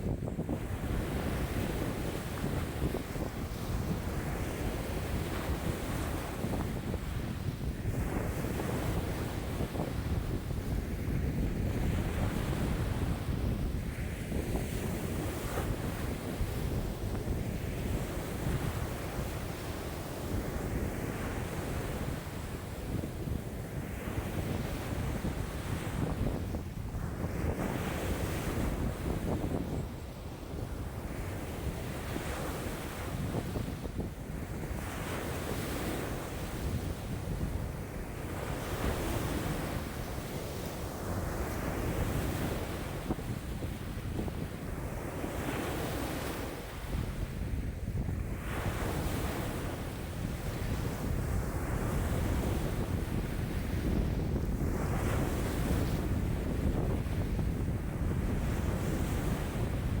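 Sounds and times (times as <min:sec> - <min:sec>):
wind buffeting microphone: 0:00.0 - 1:00.0.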